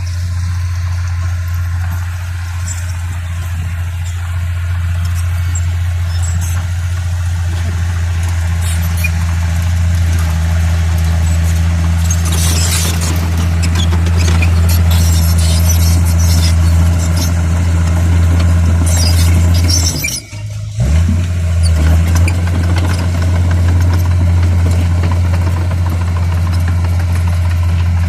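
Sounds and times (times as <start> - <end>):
high-pitched scraping squeal: 0.0 - 7.0, 8.5 - 9.5, 11.1 - 17.5, 18.7 - 20.8
bulldozer diesel engine running: 0.0 - 28.0.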